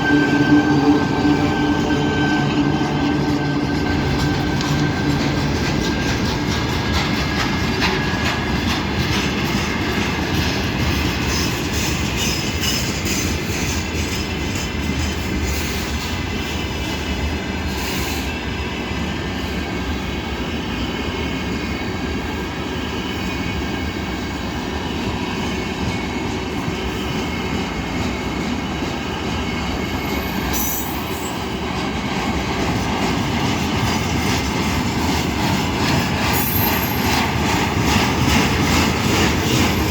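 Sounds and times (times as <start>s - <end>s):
freight train rumbling past: 0.0s - 39.9s
wheels clicking over rail joints: 2.6s - 16.0s.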